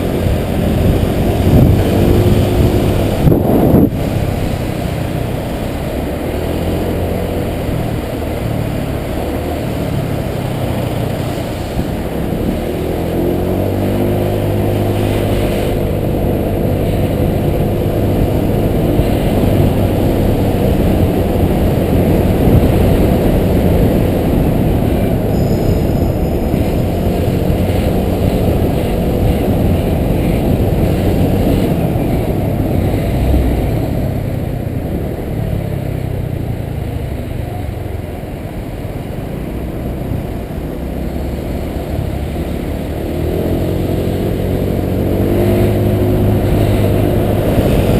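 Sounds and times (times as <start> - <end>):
scooter engine running: 0.0 - 33.0
wind rushing over microphone: 0.0 - 47.9.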